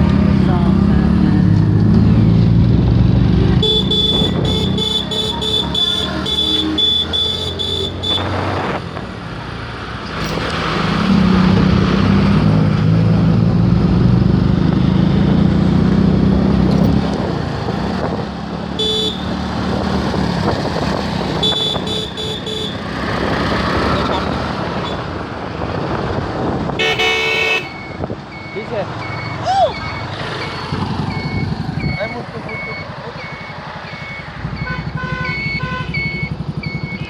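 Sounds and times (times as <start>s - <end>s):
vehicle engine hum: 0.0s - 37.0s
quick horn toots: 3.6s - 8.4s, 21.4s - 22.8s, 26.8s - 27.8s.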